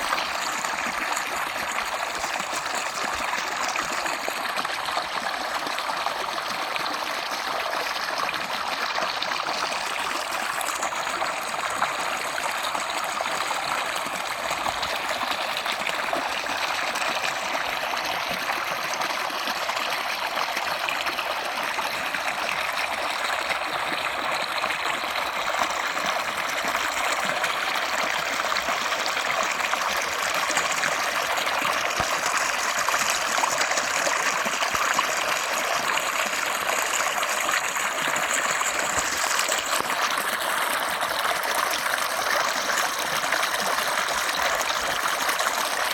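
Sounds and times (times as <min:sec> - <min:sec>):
stream water flowing: 0:00.0 - 0:45.9.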